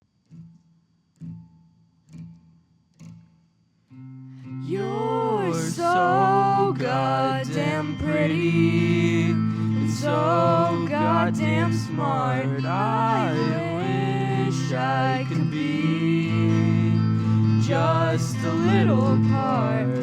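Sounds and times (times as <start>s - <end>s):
soft guitar strums: 0.3s - 20.0s
person singing: 4.6s - 20.0s.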